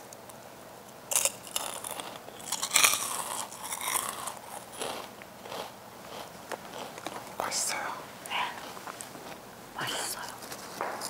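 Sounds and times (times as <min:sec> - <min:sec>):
person chewing crunchy snack: 0:01.1 - 0:09.4.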